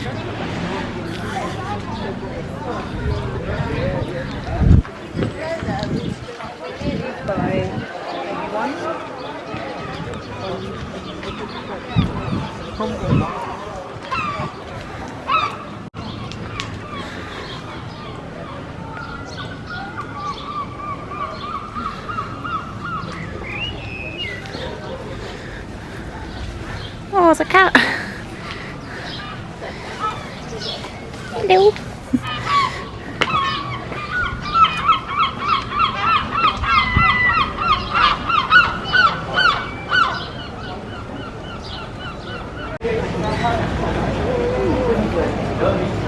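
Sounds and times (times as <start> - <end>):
outdoor background noise: 0.0 - 46.0
seagull calling: 14.1 - 15.8, 16.4 - 43.4.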